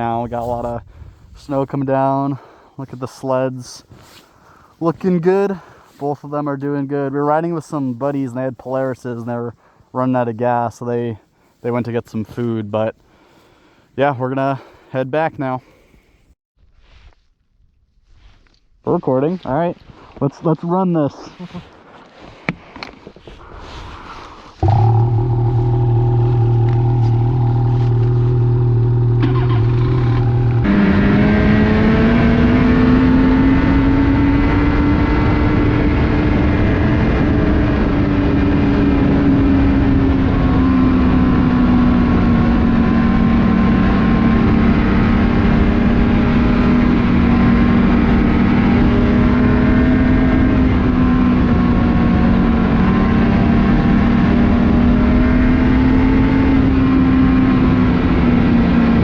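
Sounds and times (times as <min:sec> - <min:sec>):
snowmobile engine: 0:24.2 - 0:59.0.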